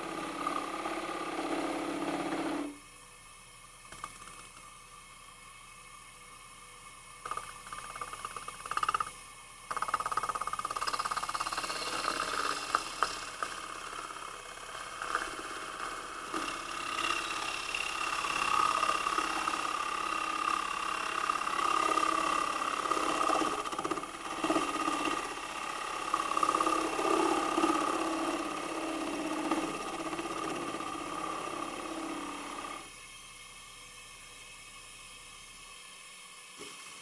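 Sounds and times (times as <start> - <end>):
lathe motor whine: 0.0 - 2.8, 11.4 - 33.0
tool cutting and scraping wood: 0.0 - 2.8, 10.4 - 32.9.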